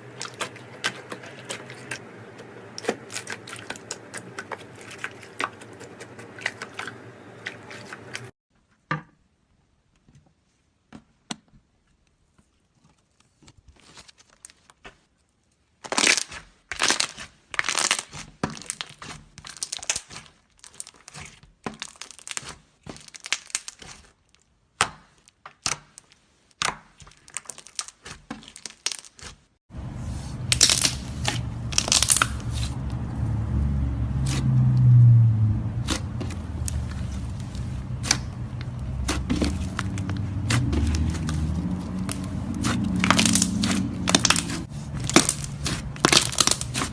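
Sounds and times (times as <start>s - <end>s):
slime crackling being kneaded: 15.8s - 46.9s
steady low hum: 29.7s - 46.9s.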